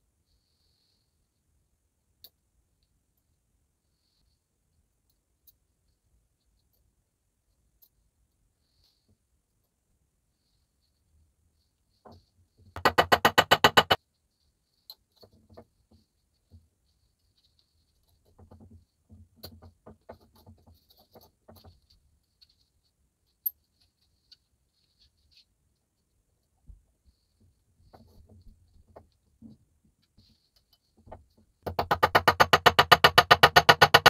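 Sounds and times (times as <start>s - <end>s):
rapid sharp clicks: 12.8s - 14.0s.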